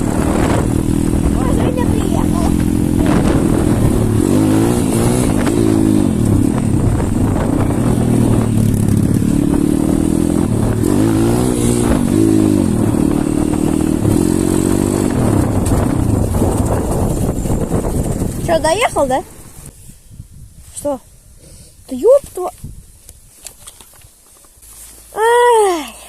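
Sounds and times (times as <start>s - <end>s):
pit bike engine running: 0.0s - 19.7s.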